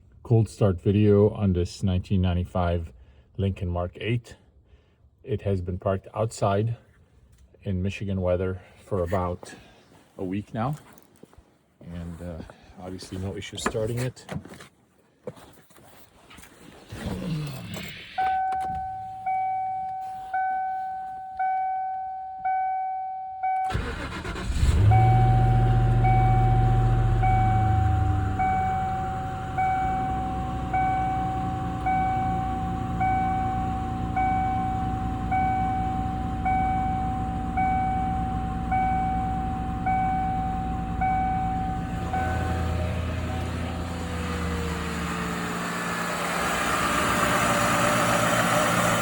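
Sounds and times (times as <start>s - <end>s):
car engine cranking and starting: 16.8s - 22.8s, 23.4s - 49.0s
car warning chime dinging: 18.2s - 45.4s
car engine idling: 23.6s - 49.0s.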